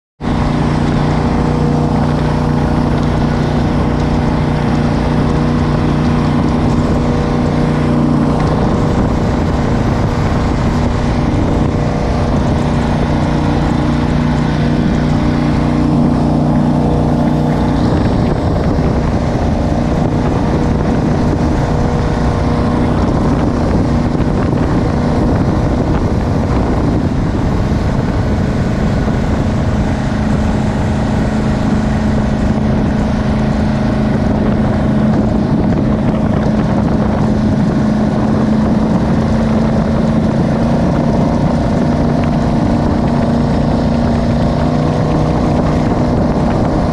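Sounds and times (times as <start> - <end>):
boat engine drone: 0.2 - 46.9
rushing water: 0.2 - 46.9
wind noise: 0.2 - 46.9.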